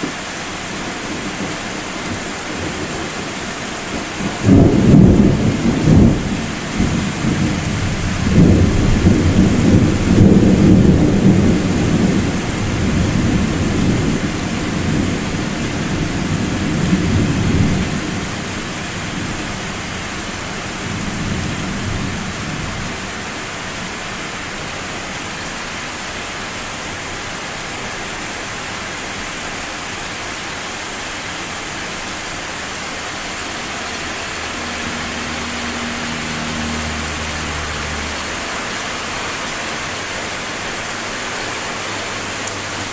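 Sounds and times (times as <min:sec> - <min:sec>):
rain hissing: 0:00.0 - 0:42.9
thunder rumbling: 0:03.9 - 0:23.0.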